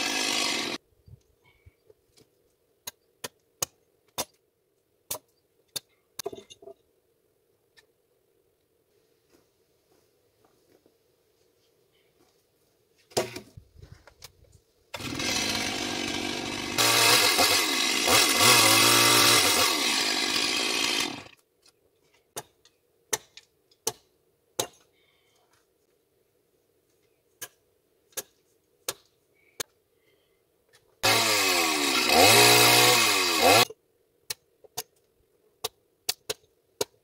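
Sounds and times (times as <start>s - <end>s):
chainsaw cutting wood: 0.0s - 0.8s, 14.9s - 21.4s, 31.0s - 33.7s.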